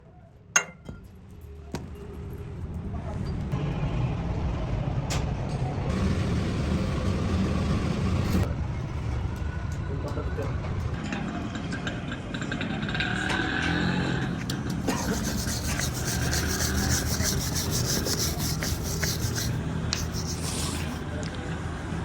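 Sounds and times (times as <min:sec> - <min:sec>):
large vehicle engine running: 0:05.8 - 0:08.5.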